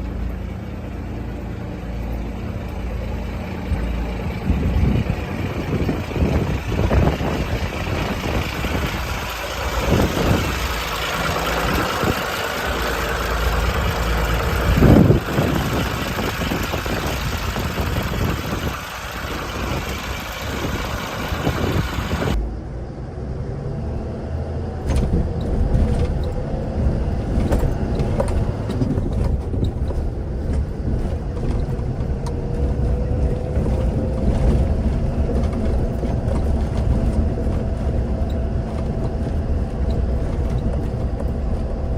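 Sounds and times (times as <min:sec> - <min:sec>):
truck diesel engine running: 0:00.0 - 0:22.4, 0:25.2 - 0:41.9
hissy wash: 0:05.5 - 0:22.4.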